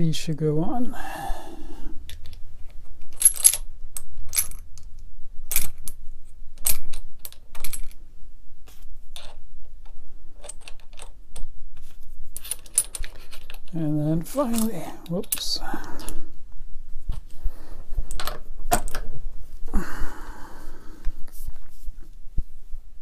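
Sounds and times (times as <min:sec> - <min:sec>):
small metal parts clinking: 0:03.0 - 0:04.8, 0:05.5 - 0:06.0, 0:06.6 - 0:08.0, 0:09.2 - 0:09.4, 0:10.4 - 0:11.5, 0:12.3 - 0:13.8, 0:14.4 - 0:16.2, 0:18.1 - 0:19.0.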